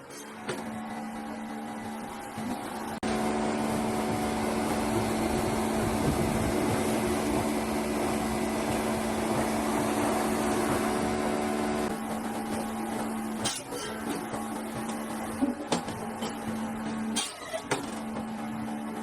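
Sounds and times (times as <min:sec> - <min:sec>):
woodworking power tool running: 0:01.4 - 0:13.4.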